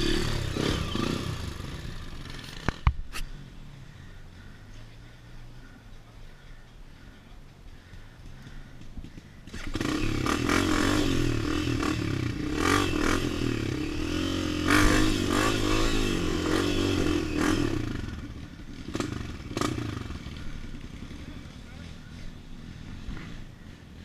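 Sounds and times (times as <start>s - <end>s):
dirt bike engine revving: 0.0s - 2.9s, 9.0s - 23.8s.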